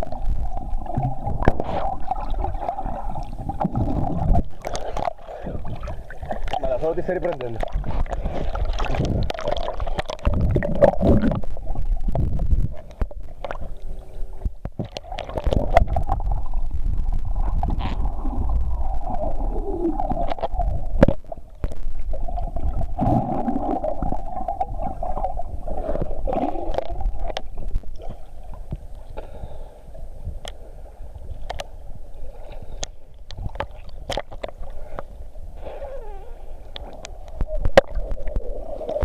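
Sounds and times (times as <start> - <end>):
water gurgling around boat: 0.0 - 39.0
low rumble: 15.5 - 28.0.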